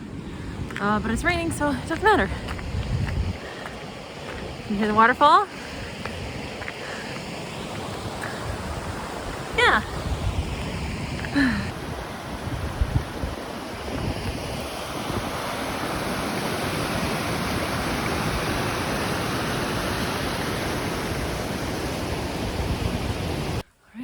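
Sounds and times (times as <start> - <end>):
wind knocking on microphone: 0.6 - 4.8, 5.9 - 15.4
waterfall rushing: 3.4 - 23.6.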